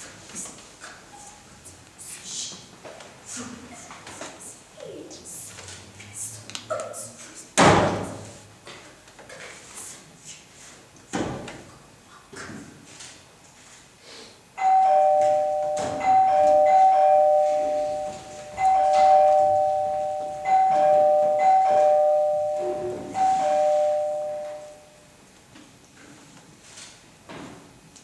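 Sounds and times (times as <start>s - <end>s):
two-tone doorbell chime: 14.6s - 25.0s.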